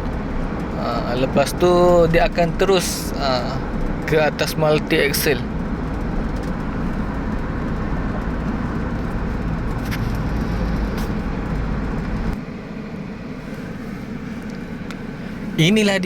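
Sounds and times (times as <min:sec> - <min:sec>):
crane machinery rumbling: 0:00.0 - 0:12.4.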